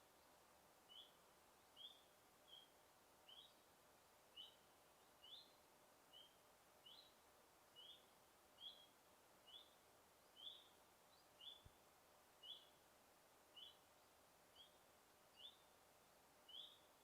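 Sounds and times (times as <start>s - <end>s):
forest background hiss: 0.0s - 17.0s
bird chirping: 0.9s - 3.7s, 4.3s - 11.8s, 12.4s - 12.8s, 13.5s - 15.7s, 16.4s - 17.0s.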